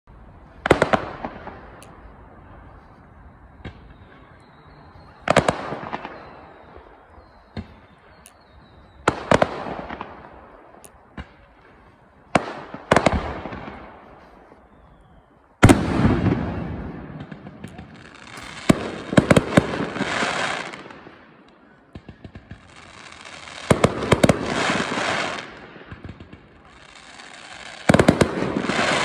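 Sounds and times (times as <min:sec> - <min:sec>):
fireworks bangs: 0:00.5 - 0:02.8, 0:03.5 - 0:29.0
faint firework pops: 0:03.6 - 0:04.1, 0:07.5 - 0:10.2, 0:10.8 - 0:13.9.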